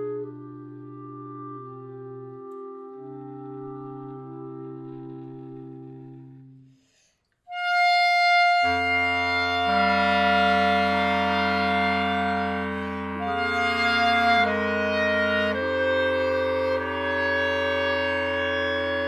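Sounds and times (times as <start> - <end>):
clarinet quartet playing: 7.6 - 19.0.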